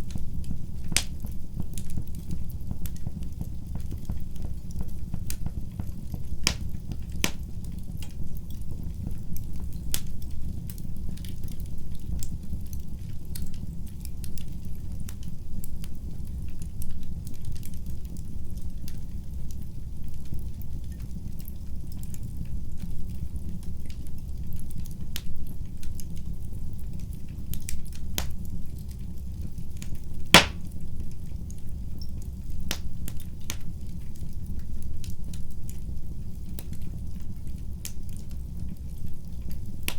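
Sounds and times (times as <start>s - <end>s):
fire crackling and popping: 0.0s - 22.4s, 23.6s - 30.8s, 32.2s - 39.9s
low rumble of flame: 0.0s - 30.5s.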